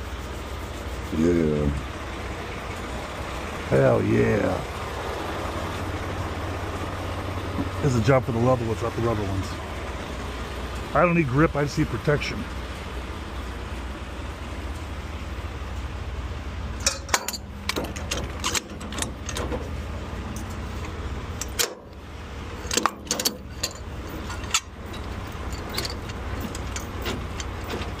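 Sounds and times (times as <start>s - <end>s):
metal crank clanking and rattling: 16.7s - 28.0s.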